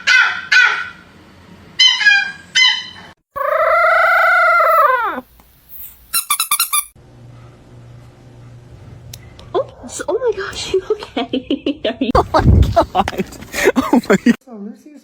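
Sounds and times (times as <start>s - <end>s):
animal calls: 1.8s - 5.2s.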